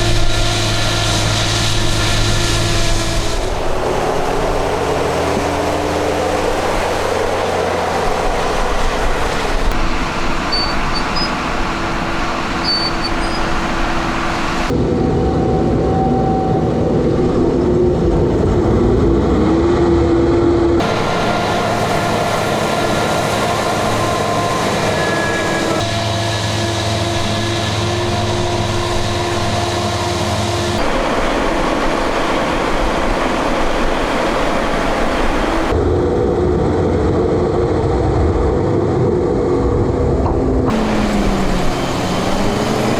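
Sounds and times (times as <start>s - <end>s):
heavy farm machines running: 0.0s - 14.7s, 20.8s - 35.7s, 40.7s - 42.9s.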